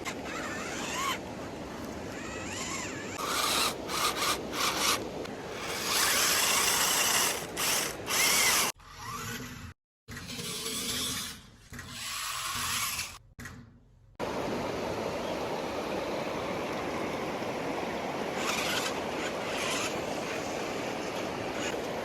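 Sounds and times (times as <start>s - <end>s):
toy car motors whining: 0.0s - 1.2s, 2.1s - 13.2s, 18.4s - 21.8s.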